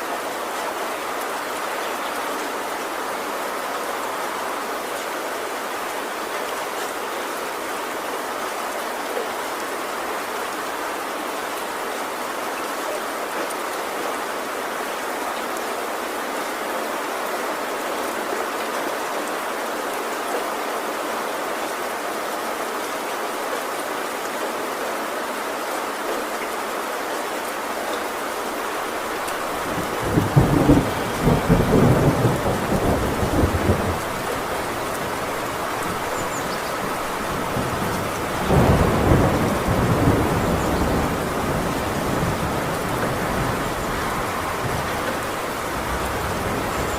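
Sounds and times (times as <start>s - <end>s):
heavy rain on a tin roof: 0.0s - 46.9s
thunder rumbling: 29.0s - 46.9s.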